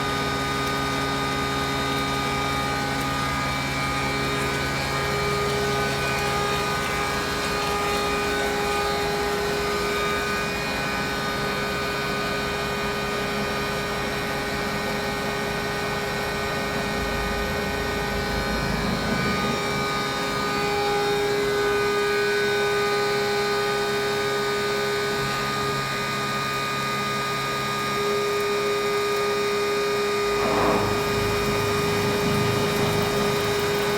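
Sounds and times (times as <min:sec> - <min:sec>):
milling machine whining hum: 0:00.0 - 0:33.9
low rumble: 0:16.9 - 0:21.8, 0:30.2 - 0:33.9.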